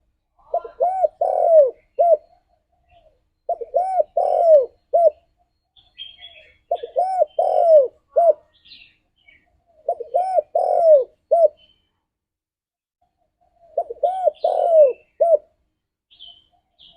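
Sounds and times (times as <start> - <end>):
dove cooing: 0.4 - 11.7, 13.4 - 15.6.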